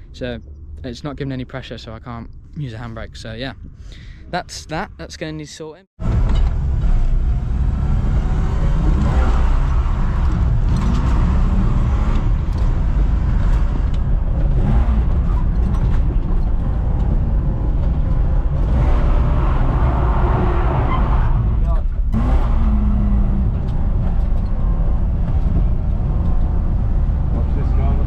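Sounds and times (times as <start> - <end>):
car engine running: 6.0 - 28.0.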